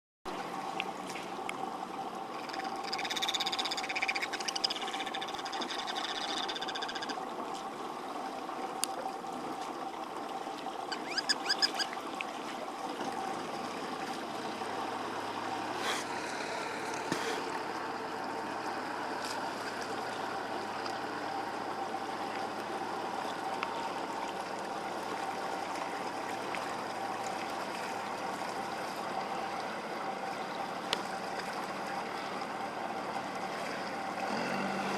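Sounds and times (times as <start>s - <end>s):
distant boat engine hum: 0.3s - 34.9s
high chirping calls: 2.4s - 7.2s, 10.9s - 11.9s.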